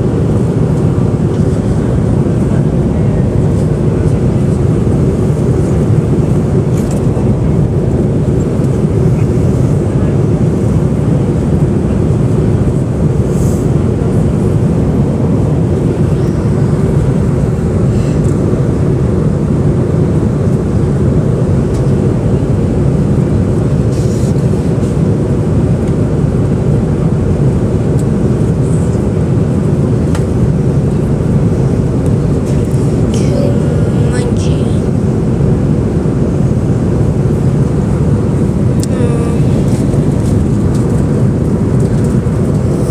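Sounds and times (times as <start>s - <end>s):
airliner cabin rumble: 0.0s - 42.9s.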